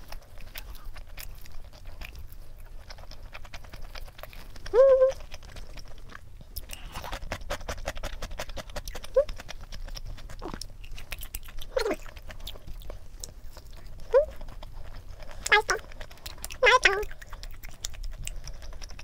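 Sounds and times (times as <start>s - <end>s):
crunching fried chicken: 0.0s - 19.0s.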